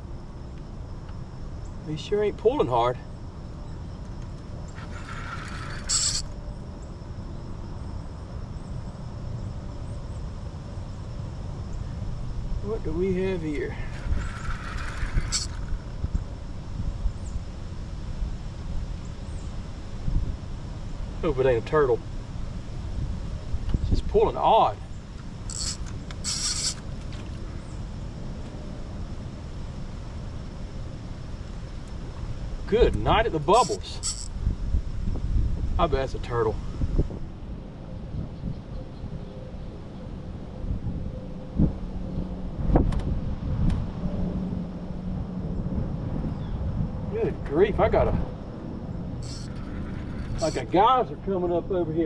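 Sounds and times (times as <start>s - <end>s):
wind rumbling on microphone: 0.0s - 52.0s
short hissing bursts: 4.8s - 6.3s, 13.7s - 15.8s, 25.4s - 26.8s, 33.5s - 34.3s, 49.2s - 50.6s
short hiss: 25.5s - 26.8s, 49.2s - 50.6s.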